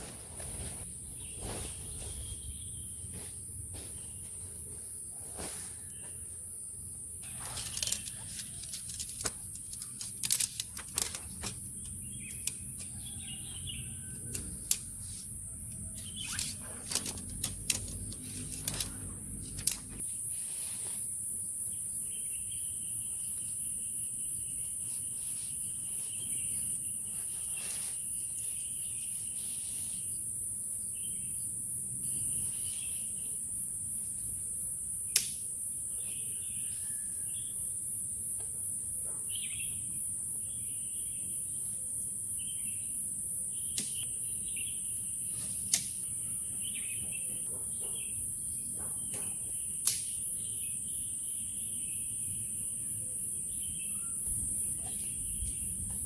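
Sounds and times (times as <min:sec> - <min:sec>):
high insect chorus: 0:00.9 - 0:56.0
sharp clicks and knocks: 0:07.2 - 0:13.7, 0:14.3 - 0:20.0.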